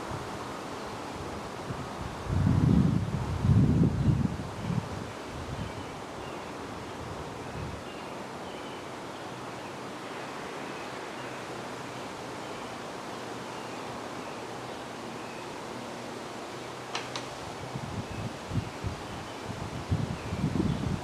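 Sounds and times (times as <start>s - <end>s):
wind blowing through trees: 0.0s - 21.0s
wind buffeting microphone: 1.2s - 6.1s, 17.4s - 21.0s.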